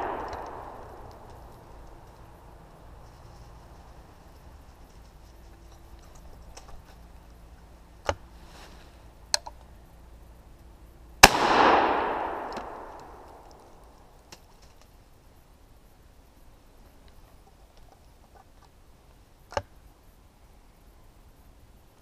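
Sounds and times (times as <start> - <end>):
gunshot echoing: 0.0 - 1.3, 11.2 - 13.4
faint sharp clicks: 0.1 - 2.2.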